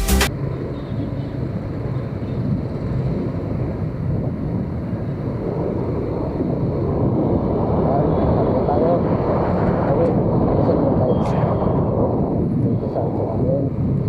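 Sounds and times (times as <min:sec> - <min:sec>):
music track: 0:00.0 - 0:00.3
wind noise on microphone: 0:00.3 - 0:14.0.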